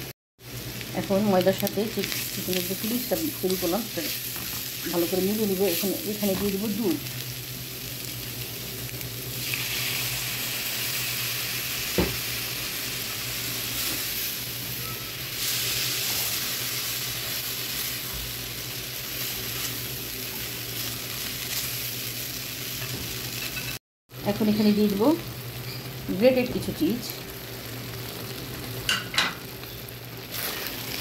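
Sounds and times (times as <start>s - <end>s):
filling sizzling in frying pan: 0.4s - 31.0s.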